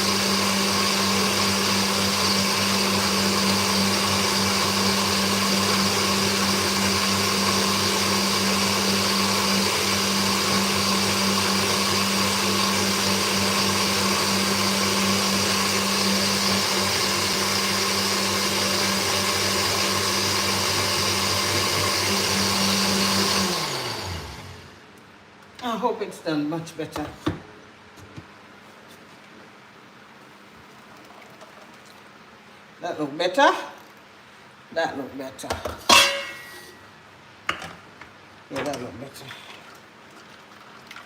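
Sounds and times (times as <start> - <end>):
blender running: 0.0 - 24.8.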